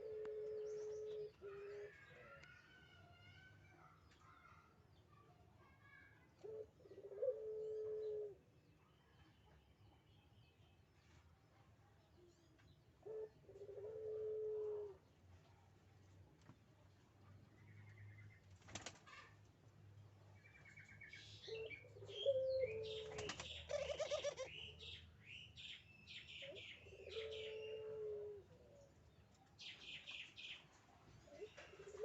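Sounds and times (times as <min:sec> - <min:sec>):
dove cooing: 0:00.0 - 0:02.3, 0:06.4 - 0:08.4, 0:13.0 - 0:15.0, 0:21.4 - 0:24.7, 0:26.4 - 0:28.9, 0:31.3 - 0:32.0
wings flapping: 0:18.6 - 0:19.3, 0:23.0 - 0:23.6.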